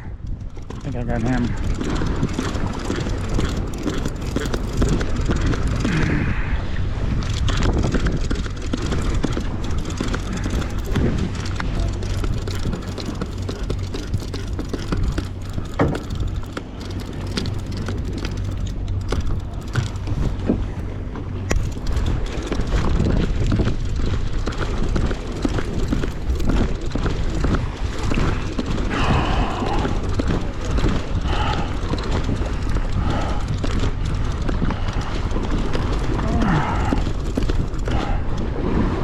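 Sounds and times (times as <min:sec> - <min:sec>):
water noise: 0:00.0 - 0:39.0
wind: 0:00.0 - 0:39.0
clicks and knocks of gear: 0:00.1 - 0:06.1, 0:07.2 - 0:38.5
boat engine humming: 0:00.4 - 0:39.0.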